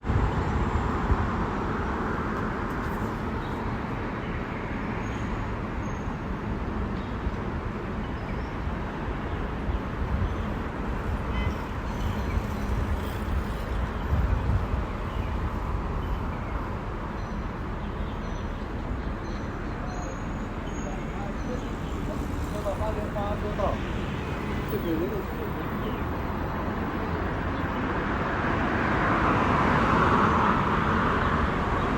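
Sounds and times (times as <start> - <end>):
low road rumble: 6.4 - 31.9.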